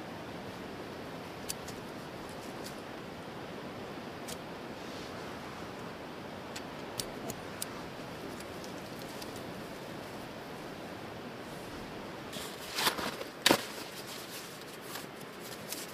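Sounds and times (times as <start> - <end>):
campfire crackling and hissing: 0.0 - 15.9.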